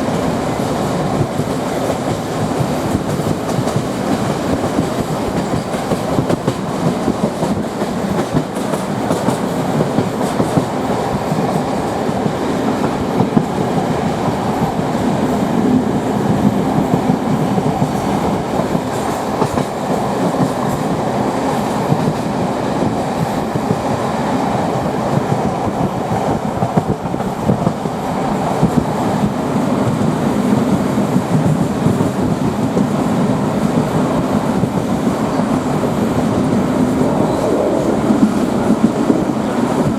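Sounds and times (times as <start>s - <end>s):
moving train noise: 0.0s - 39.9s
wheels clacking over rail joints: 0.6s - 30.1s.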